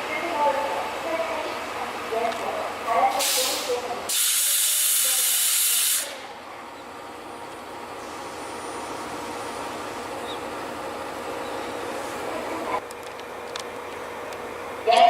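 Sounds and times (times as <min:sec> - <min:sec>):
train running noise: 0:00.0 - 0:15.0
compressed air hissing from train: 0:03.1 - 0:06.2.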